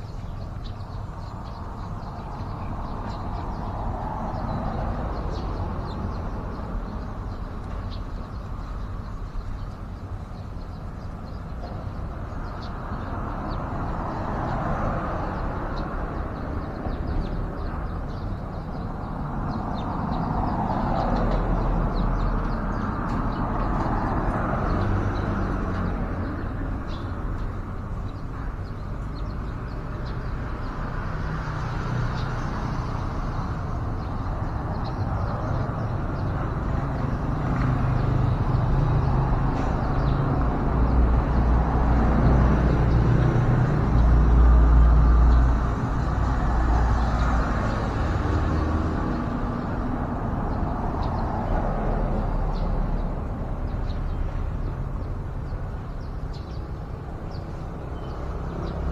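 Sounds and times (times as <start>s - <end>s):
road traffic rumbling: 0.0s - 58.9s.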